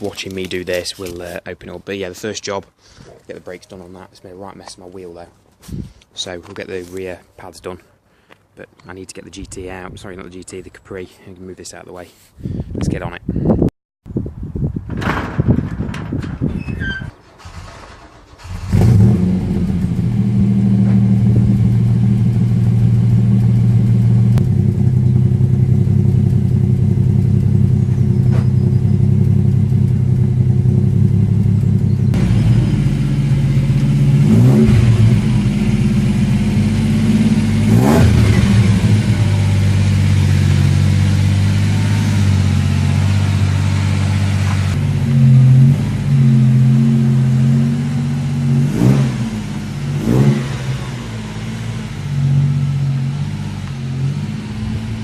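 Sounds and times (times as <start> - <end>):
car engine starting and idling: 17.2 - 55.0.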